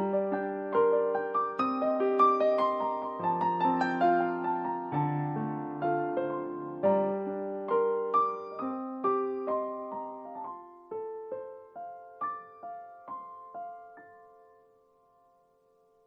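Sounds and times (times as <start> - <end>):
solo piano music: 0.0 - 16.0.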